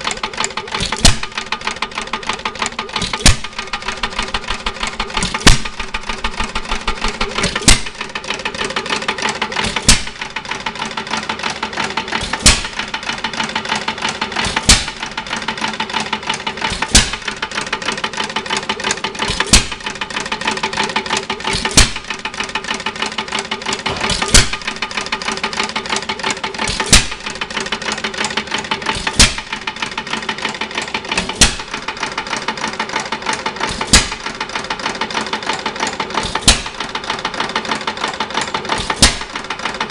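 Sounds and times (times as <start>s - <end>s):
engine clatter: 0.0s - 39.9s
engine firing bang: 2.9s - 8.2s, 9.6s - 10.4s, 12.2s - 13.1s, 14.4s - 15.2s, 16.7s - 17.5s, 21.5s - 22.2s, 23.8s - 24.9s, 28.9s - 29.7s, 31.1s - 32.0s, 33.6s - 34.4s, 36.2s - 37.0s, 38.7s - 39.6s.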